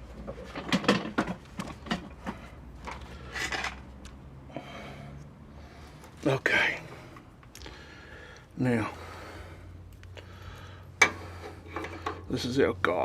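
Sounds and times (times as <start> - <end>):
metal parts clinking and knocking: 0.2 - 3.9.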